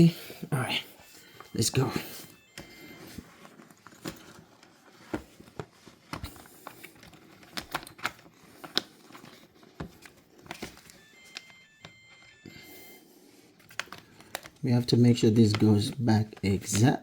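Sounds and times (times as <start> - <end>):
dishwasher electronic beep: 0.0 - 3.2
plastic parts clicking and knocking: 3.9 - 12.2, 13.6 - 14.6, 15.3 - 17.0.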